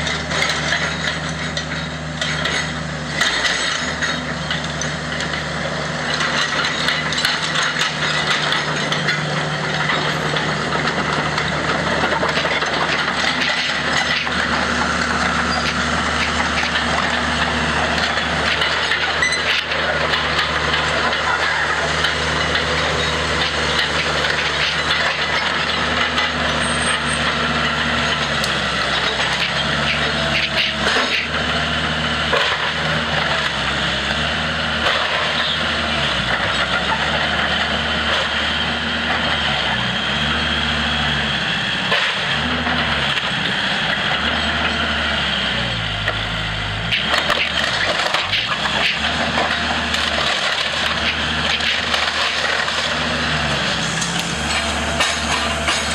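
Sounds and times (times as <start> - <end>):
diesel engine working: 0.0 - 55.9
wood cracking and splintering: 46.9 - 55.9.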